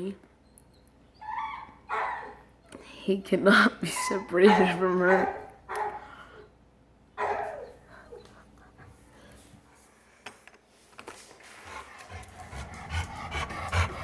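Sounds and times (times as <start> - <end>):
dog whining: 1.1 - 2.4, 7.2 - 8.4
dog panting: 11.5 - 14.0.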